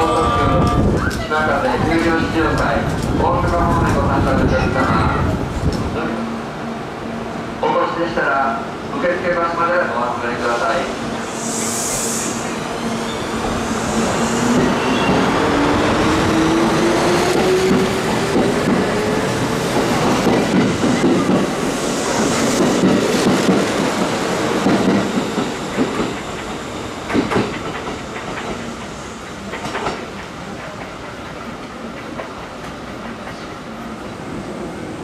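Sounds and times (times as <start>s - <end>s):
train wheels clattering over rail joints: 22.5s - 28.7s, 29.4s - 33.4s.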